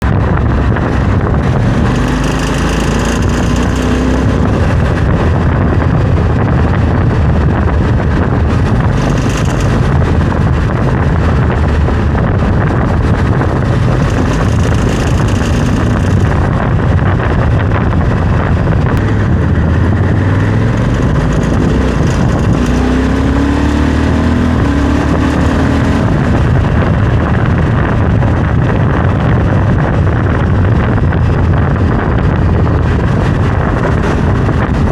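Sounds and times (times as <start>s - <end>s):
motorcycle engine running: 0.0s - 34.9s
wind noise: 0.0s - 34.9s
high-pitched rattle: 1.9s - 4.0s, 8.9s - 10.0s, 13.9s - 16.4s.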